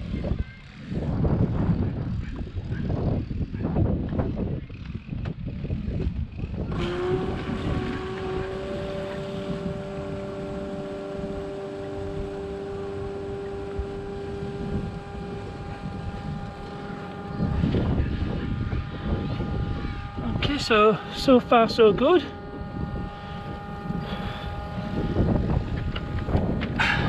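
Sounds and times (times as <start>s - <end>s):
wind rumble on microphone: 0.0s - 27.0s
water pump whining: 6.2s - 27.0s.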